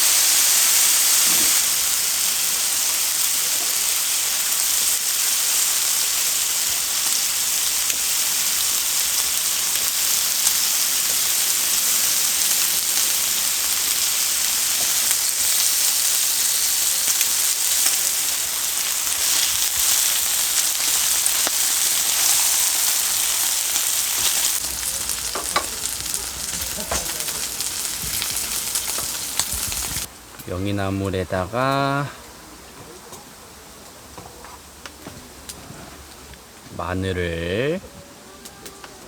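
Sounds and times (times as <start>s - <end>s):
food sizzling in a pan: 0.0s - 30.1s.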